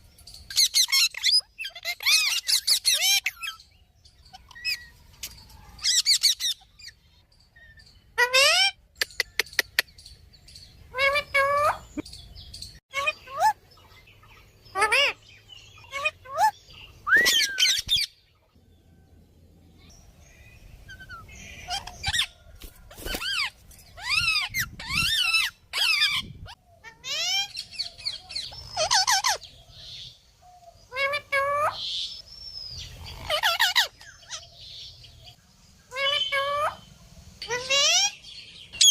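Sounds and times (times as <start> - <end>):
parrot squawks and whistles: 16.0 - 18.1.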